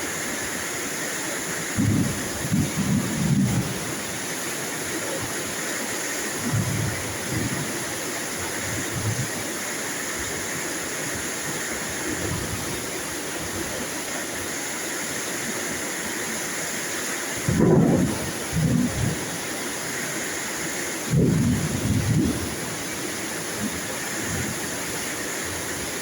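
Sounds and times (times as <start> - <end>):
steady rain hissing: 0.0 - 26.0.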